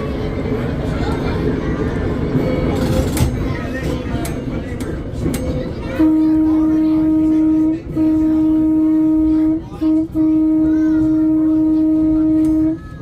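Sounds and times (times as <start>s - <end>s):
trolley horn blasts: 5.8s - 13.0s.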